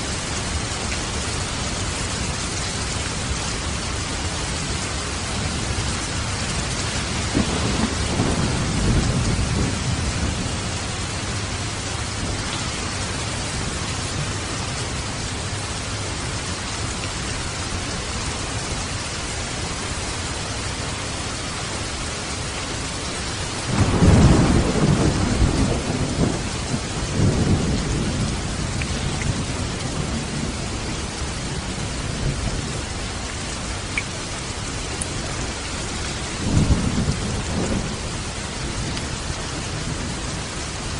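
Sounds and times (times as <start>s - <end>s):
rain hiss: 0.0s - 40.9s
thunder rumbling: 5.2s - 15.6s, 23.6s - 32.8s, 36.1s - 40.8s.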